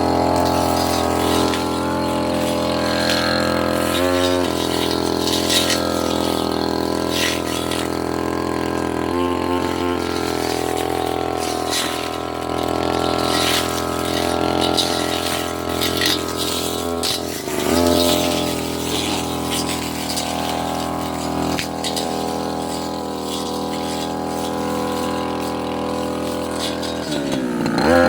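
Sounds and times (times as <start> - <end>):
brush cutter engine running: 0.0 - 28.0.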